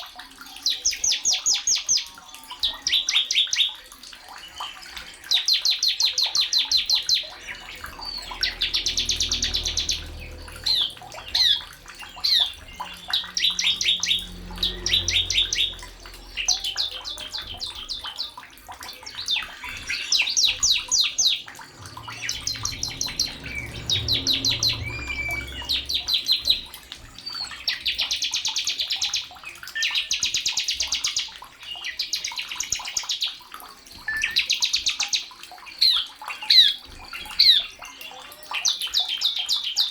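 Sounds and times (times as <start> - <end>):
songbird trilling: 4.6 - 18.2, 19.1 - 29.1.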